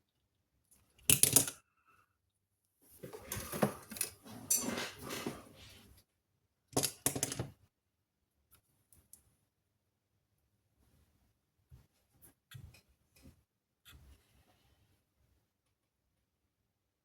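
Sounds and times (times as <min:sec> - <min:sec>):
metal tools clattering on circuit board: 0:03.3 - 0:05.0.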